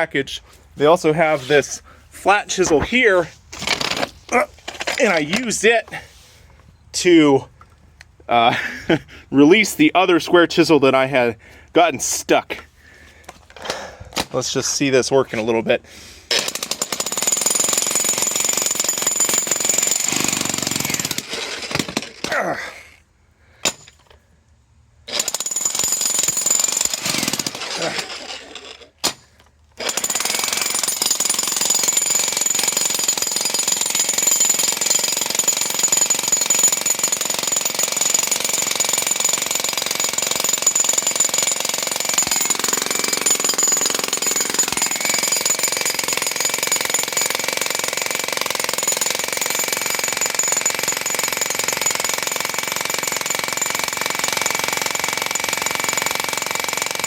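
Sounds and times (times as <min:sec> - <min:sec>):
jackhammer breaking concrete: 0:03.6 - 0:04.1, 0:16.3 - 0:22.3, 0:25.1 - 0:29.2, 0:29.8 - 0:57.0.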